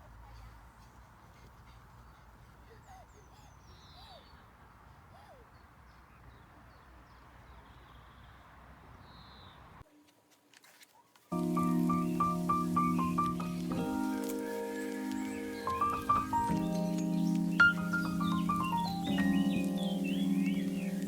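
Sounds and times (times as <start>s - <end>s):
birds chirping: 0.0s - 9.8s, 11.3s - 21.0s
steady background hiss: 11.3s - 21.0s
music: 11.4s - 21.0s.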